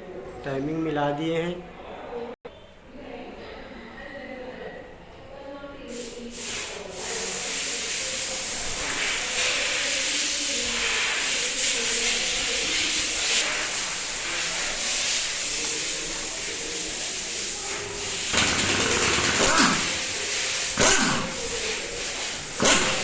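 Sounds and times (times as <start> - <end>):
loud hiss of air jet: 5.9 - 23.0.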